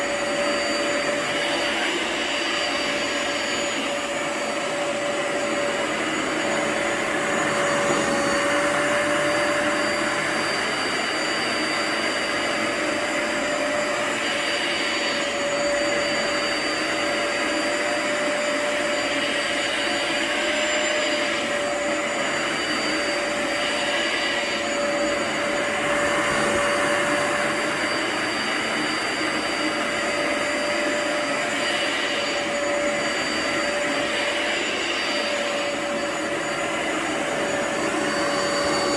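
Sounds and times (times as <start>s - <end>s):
vacuum cleaner motor running: 0.0s - 38.9s.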